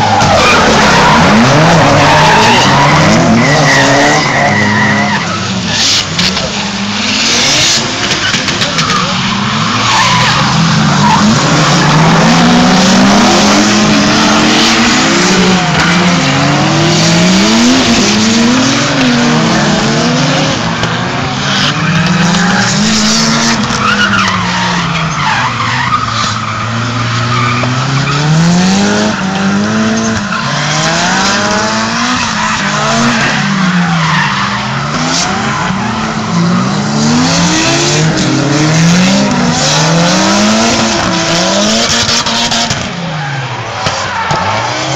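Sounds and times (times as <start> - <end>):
car engine revving: 0.0 - 44.9
tyres squealing and skidding: 0.0 - 44.9.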